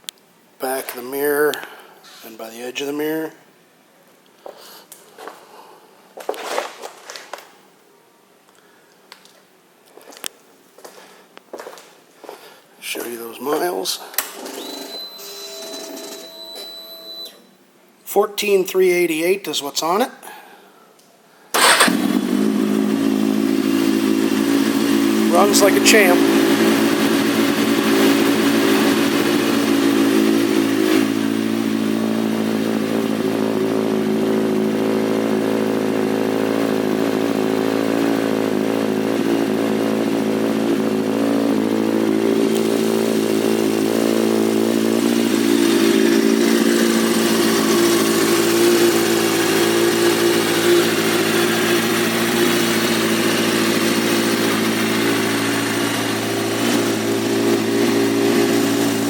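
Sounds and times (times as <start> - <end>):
motorcycle engine idling: 21.6 - 59.0.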